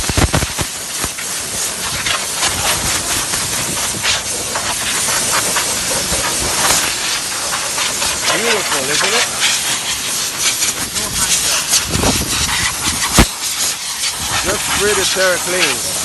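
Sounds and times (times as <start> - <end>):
hissing spray: 0.0 - 16.0.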